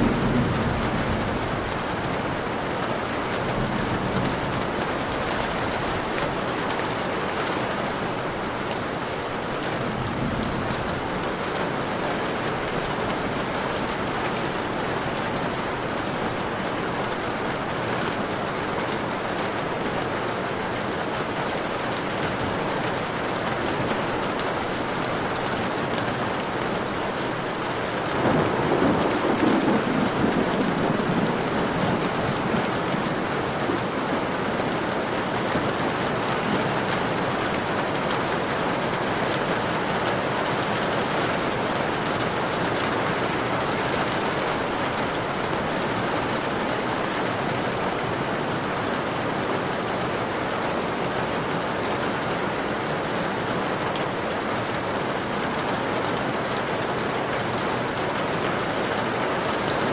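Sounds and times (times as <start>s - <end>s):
thunder rumbling: 0.0s - 6.3s, 26.1s - 35.4s
rain pattering on a window: 0.0s - 59.9s.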